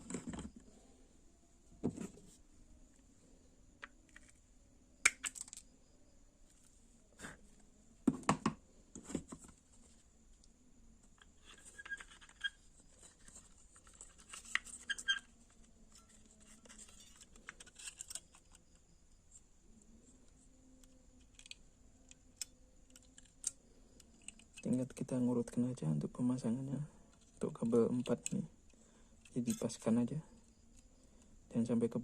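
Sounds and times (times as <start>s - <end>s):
clicks and scratches of handling wires: 0.0s - 0.6s, 3.8s - 4.4s, 8.9s - 19.5s, 20.1s - 25.6s, 27.1s - 30.9s
faint steady high whine: 0.0s - 32.0s.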